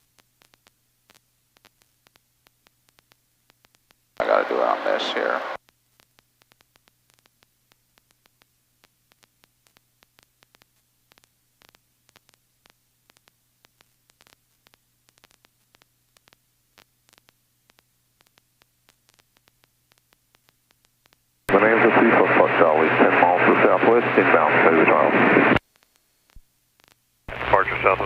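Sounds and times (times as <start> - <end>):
faint static ticks: 0.0 - 21.5, 22.9 - 28.0
low steady hum: 0.4 - 28.0.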